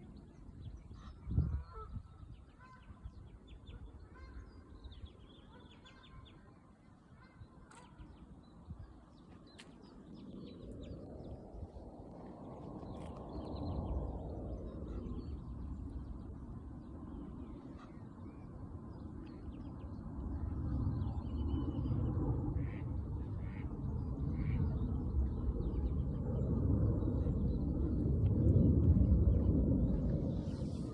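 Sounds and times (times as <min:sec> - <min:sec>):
steady low rumble: 0:07.7 - 0:30.9.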